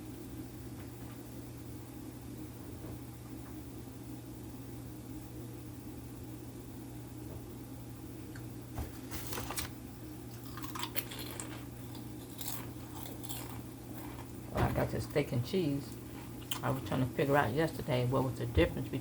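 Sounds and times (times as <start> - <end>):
steady low hum: 0.0 - 19.0
food crunches: 9.2 - 14.4, 16.0 - 16.8
person biting and chewing food: 9.2 - 14.5, 16.0 - 16.7.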